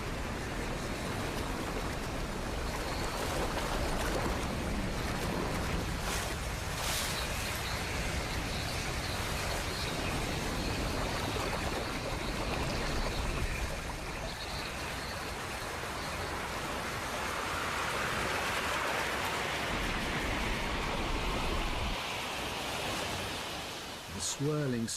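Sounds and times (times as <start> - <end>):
wind rushing: 18.8 - 24.0.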